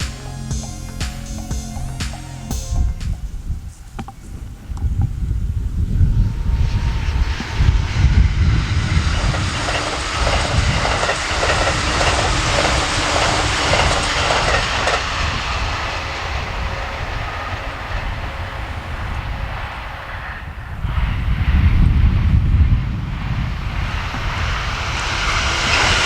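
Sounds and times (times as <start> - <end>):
wind rumbling on microphone: 2.6 - 26.0
train wheels clacking over rail joints: 9.0 - 17.7.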